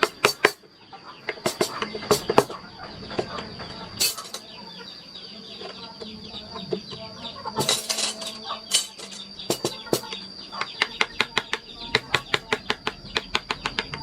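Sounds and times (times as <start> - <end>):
birds chirping: 0.0 - 14.0
chickens clucking: 0.0 - 14.0.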